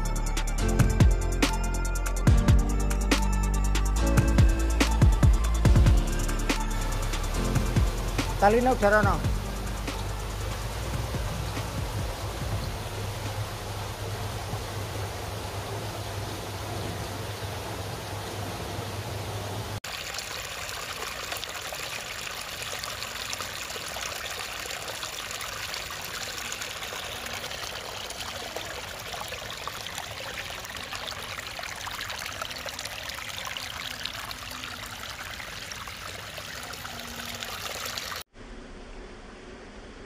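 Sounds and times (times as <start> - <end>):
waterfall splashing over stones: 7.2 - 19.0, 19.7 - 38.3.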